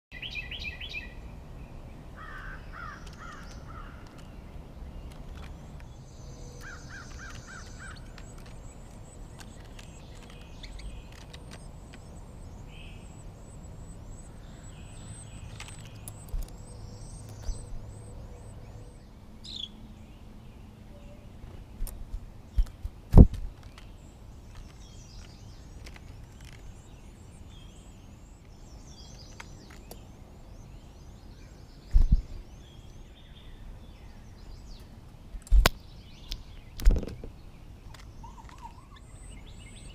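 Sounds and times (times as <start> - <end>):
small birds chirping: 0.1 - 39.9
steady background hiss: 0.2 - 39.9
sharp thumps: 21.8 - 23.8.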